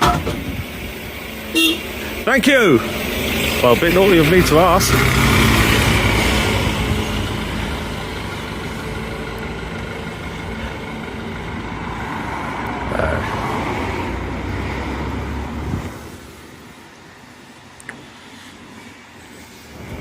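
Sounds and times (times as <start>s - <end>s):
traffic hum: 0.0s - 20.0s
vehicle engine running: 0.5s - 13.2s.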